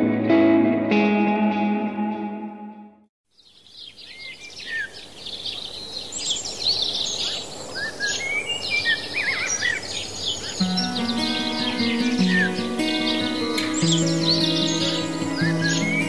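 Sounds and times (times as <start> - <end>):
songbirds chirping and singing: 3.4 - 16.0
steady outdoor hiss: 3.4 - 16.0.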